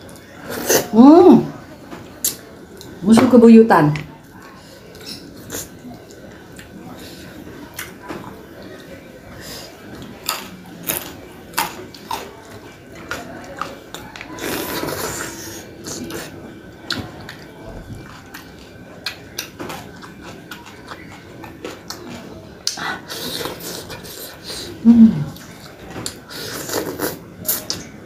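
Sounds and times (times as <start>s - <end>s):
person chewing crunchy food: 10.0s - 24.4s, 25.3s - 27.8s.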